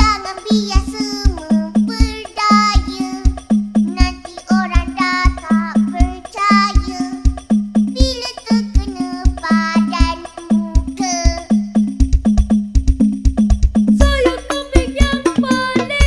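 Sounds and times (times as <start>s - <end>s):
remix music with booming bass: 11.9s - 16.0s.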